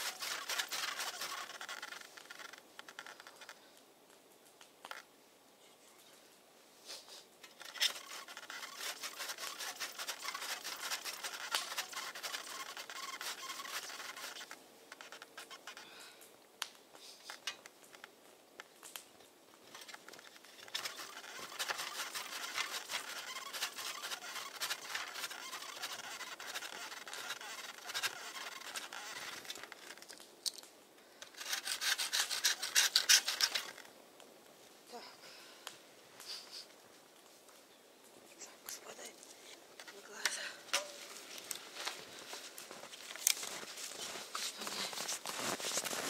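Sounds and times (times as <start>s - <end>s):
rustling and scratching clicks: 0.0s - 3.6s, 7.4s - 15.9s, 16.7s - 33.9s, 38.7s - 46.0s.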